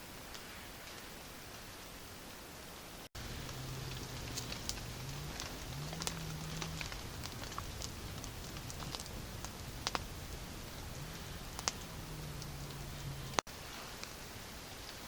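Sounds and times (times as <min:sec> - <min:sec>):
rain: 0:00.0 - 0:15.0
low droning hum: 0:03.2 - 0:13.4
sharp ticks and crackles: 0:03.2 - 0:15.0.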